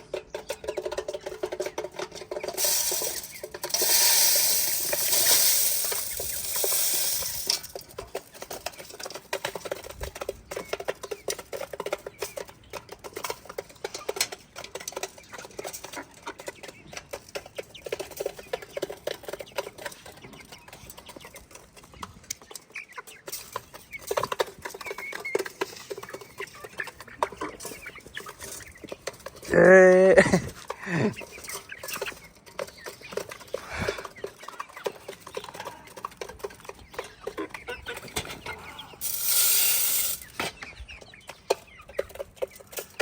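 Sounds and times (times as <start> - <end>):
chicks pecking and scratching: 0.0 - 43.0.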